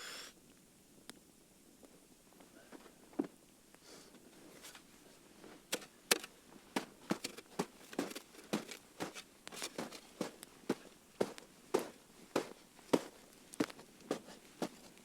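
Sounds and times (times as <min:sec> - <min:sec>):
campfire crackling and popping: 0:06.1 - 0:12.1, 0:13.0 - 0:15.0.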